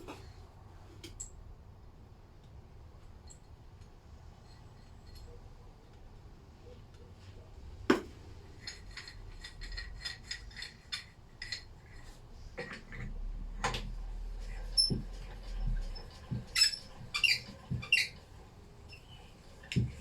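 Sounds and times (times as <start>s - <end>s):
metal clinking: 8.6s - 12.1s.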